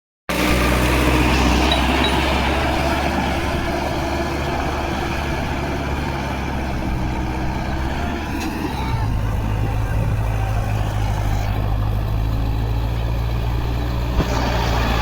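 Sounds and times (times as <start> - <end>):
tractor diesel engine running: 0.3 - 15.0.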